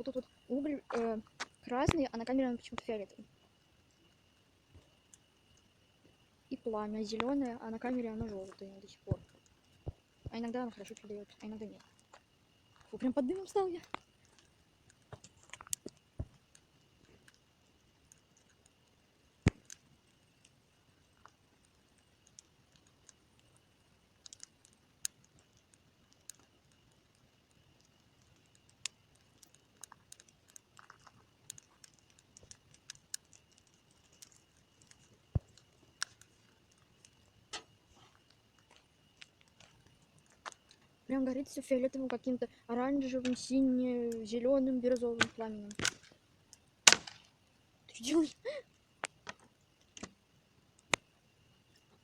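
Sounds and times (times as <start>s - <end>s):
campfire crackling and popping: 0.0s - 52.0s.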